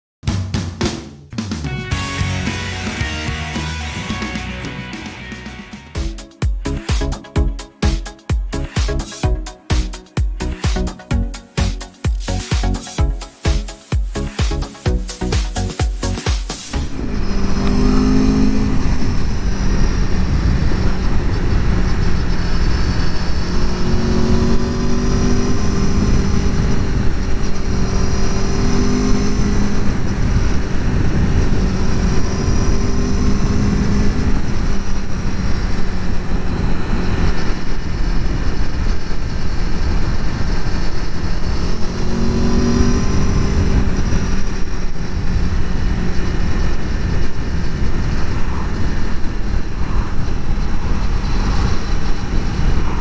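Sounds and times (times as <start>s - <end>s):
motorcycle engine revving: 16.1s - 21.7s
wind noise: 16.7s - 53.0s.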